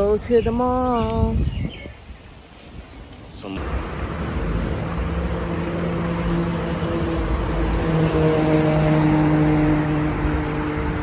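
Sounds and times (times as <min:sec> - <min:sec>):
car engine and road rumble: 0:03.3 - 0:11.0.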